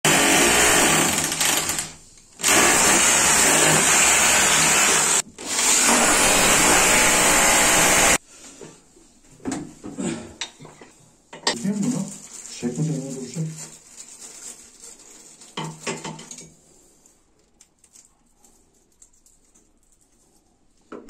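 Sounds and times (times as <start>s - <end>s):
power drill running: 0.1s - 8.2s.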